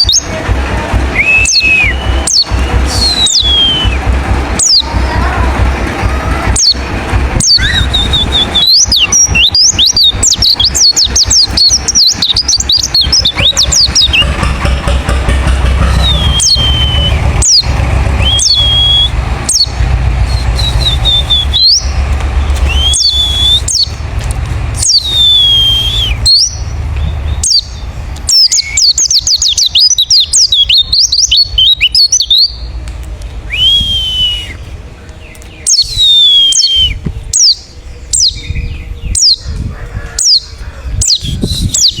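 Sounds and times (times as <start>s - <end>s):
birds twittering: 0.0s - 42.0s
bird slurred whistles: 1.2s - 4.0s, 7.5s - 14.3s, 15.8s - 21.9s, 22.5s - 24.0s, 24.8s - 26.6s, 33.5s - 34.7s, 35.6s - 37.6s, 41.1s - 42.0s
low rumble and crackle: 11.5s - 28.3s, 32.7s - 35.6s.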